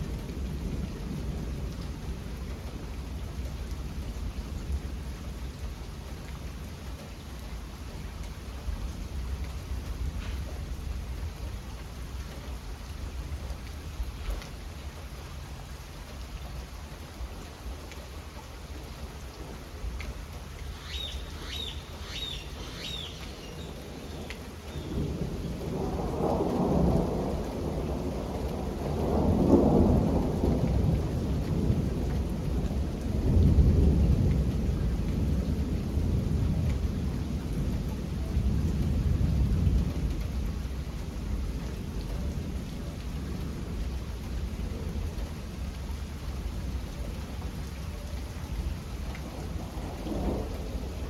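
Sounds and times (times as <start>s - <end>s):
steady rain falling: 0.0s - 51.0s
thunder rolling: 20.7s - 34.7s, 48.7s - 51.0s.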